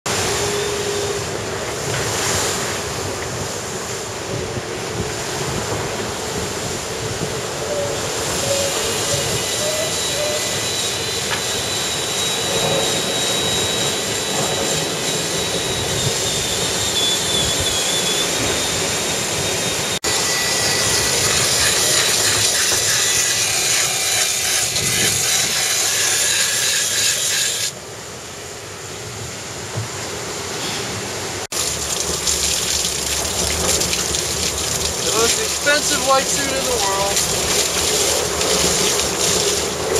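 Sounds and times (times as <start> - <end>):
faint high whine: 0.1 - 1.6
rushing water and wind: 0.1 - 39.9.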